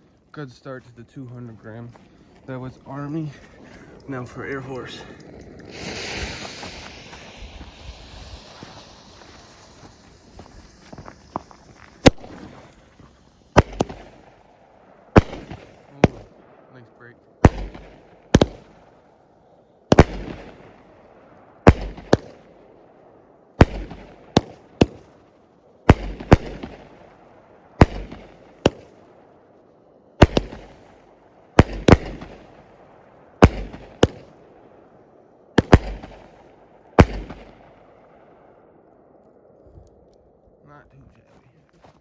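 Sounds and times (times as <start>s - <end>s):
fireworks cake bangs: 5.7s - 14.4s, 15.2s - 16.4s, 17.4s - 18.8s, 19.9s - 20.8s, 21.7s - 22.5s, 23.6s - 25.2s, 25.9s - 27.0s, 27.8s - 29.1s, 30.2s - 31.0s, 31.6s - 32.7s, 33.4s - 34.4s, 35.6s - 37.6s.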